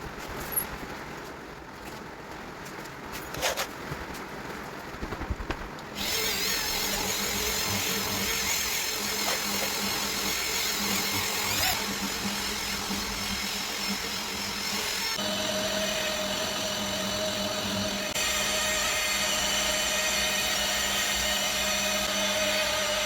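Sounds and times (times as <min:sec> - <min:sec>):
electric polisher running: 0:06.0 - 0:23.0.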